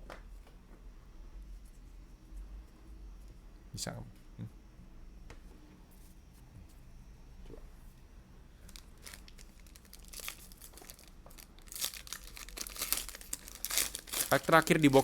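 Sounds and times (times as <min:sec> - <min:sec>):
wrapper crinkling: 0:08.6 - 0:15.0.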